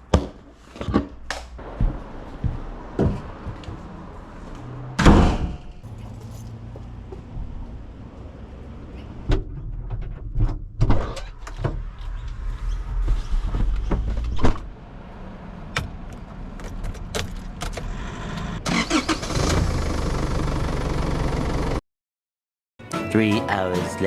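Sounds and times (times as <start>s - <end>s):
low steady rumble: 5.6s - 10.6s
keys jangling: 5.9s - 6.7s
sharp clicks and knocks: 15.8s - 17.9s.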